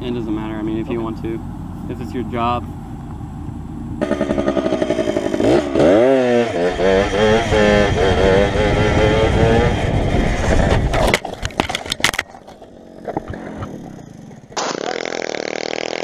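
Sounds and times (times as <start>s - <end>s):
motorcycle engine running: 0.4s - 11.0s.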